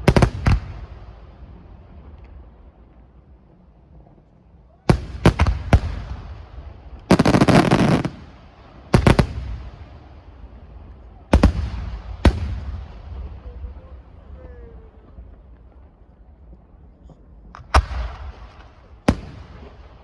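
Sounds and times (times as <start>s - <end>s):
fireworks bangs: 0.0s - 3.0s, 4.9s - 16.0s, 17.6s - 20.0s
fireworks crackling: 0.0s - 3.5s, 4.2s - 14.4s.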